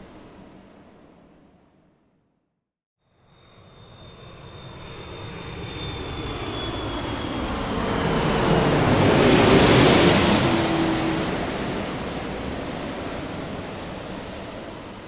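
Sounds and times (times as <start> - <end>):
airplane engine and airflow rush: 0.0 - 1.8, 3.3 - 15.0.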